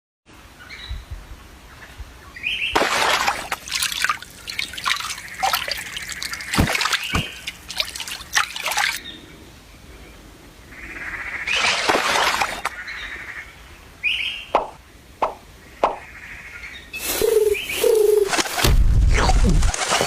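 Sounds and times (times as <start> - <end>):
water splashing and sloshing: 2.8 - 9.0, 11.5 - 12.8, 18.3 - 20.0.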